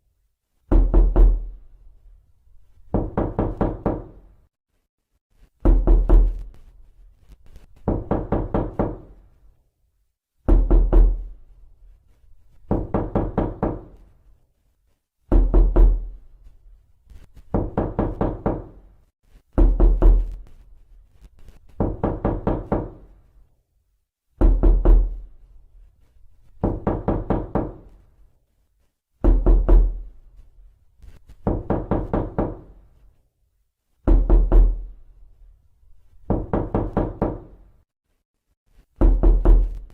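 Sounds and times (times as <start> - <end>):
rapid knocking on a door: 0.7 - 1.6, 2.9 - 4.2, 5.6 - 6.5, 7.8 - 9.2, 10.5 - 11.4, 12.7 - 14.0, 15.3 - 16.2, 17.5 - 18.8, 19.6 - 20.4, 21.7 - 23.1, 24.4 - 25.2, 26.6 - 27.9, 29.2 - 30.1, 31.4 - 32.8, 34.1 - 34.9, 36.2 - 37.6, 39.0 - 39.9.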